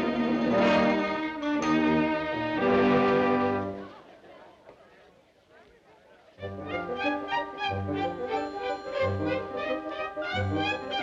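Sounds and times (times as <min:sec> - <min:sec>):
orchestral strings holding notes: 0:00.0 - 0:03.9, 0:06.4 - 0:11.0.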